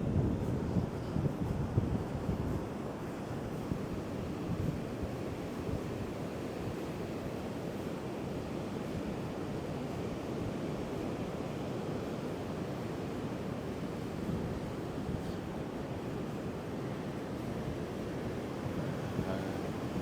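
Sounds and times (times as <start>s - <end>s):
wind buffeting microphone: 0.0s - 2.8s.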